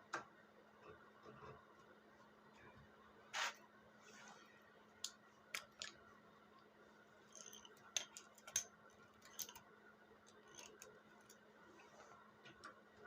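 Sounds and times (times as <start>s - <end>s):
faint steady hum: 0.0s - 13.0s
tools and parts clicking: 7.3s - 9.6s, 10.3s - 11.4s.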